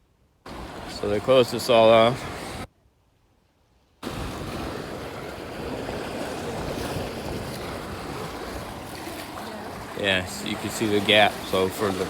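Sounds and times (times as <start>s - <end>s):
lake waves washing onto shore: 0.5s - 2.7s, 4.0s - 12.0s
wind blowing across microphone: 4.0s - 12.0s.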